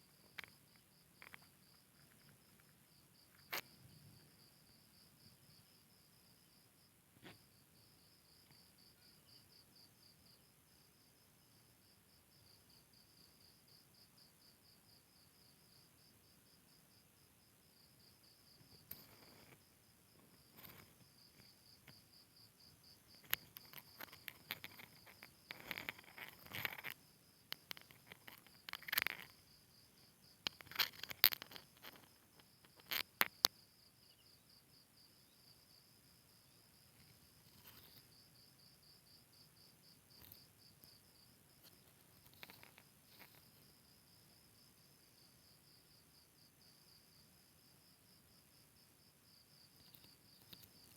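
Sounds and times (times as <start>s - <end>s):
cricket chirping: 0.0s - 50.9s
clicks and rustles: 0.2s - 3.8s, 18.8s - 19.6s, 20.2s - 22.0s, 23.1s - 29.4s, 30.4s - 33.5s, 37.0s - 38.1s, 41.6s - 43.7s, 49.8s - 50.9s.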